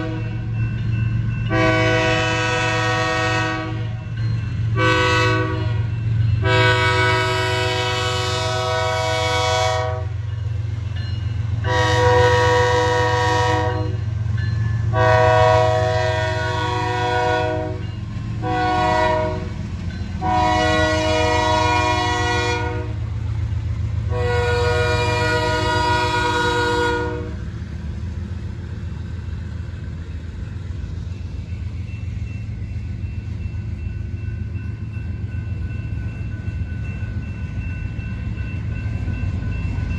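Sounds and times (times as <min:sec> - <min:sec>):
locomotive horn blasts: 0:00.0 - 0:00.4, 0:01.5 - 0:04.0, 0:04.7 - 0:10.2, 0:11.6 - 0:14.1, 0:14.9 - 0:19.6, 0:20.2 - 0:23.0, 0:24.1 - 0:27.5
locomotive engine rumble: 0:00.0 - 0:39.9.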